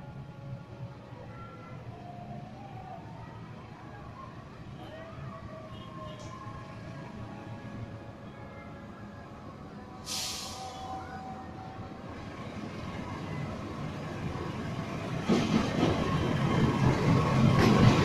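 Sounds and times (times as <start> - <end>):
brief hiss: 10.0 - 10.9
train wheels clattering on rails: 14.8 - 18.0.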